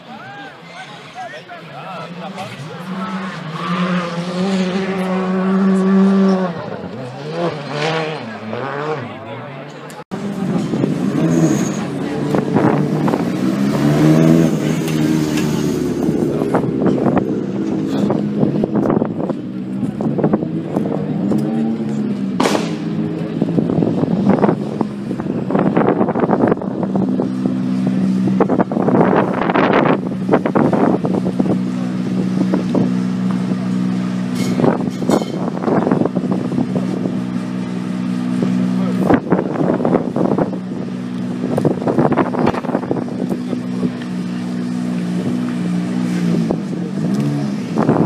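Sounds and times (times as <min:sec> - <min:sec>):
rally car engine revving high: 0:01.6 - 0:48.0
sharp cracks or knocks: 0:22.4 - 0:22.8.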